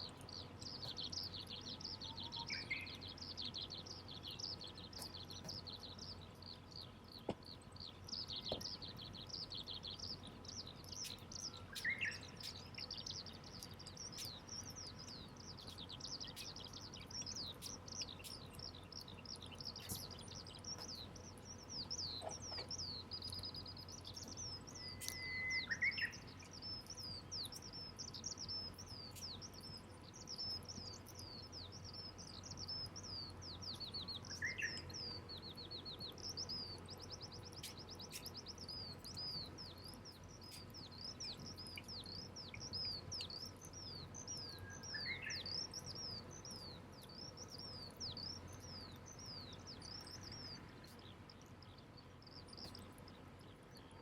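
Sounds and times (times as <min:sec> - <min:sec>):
birds twittering: 0:00.0 - 0:54.0
lower bird call: 0:24.7 - 0:26.2.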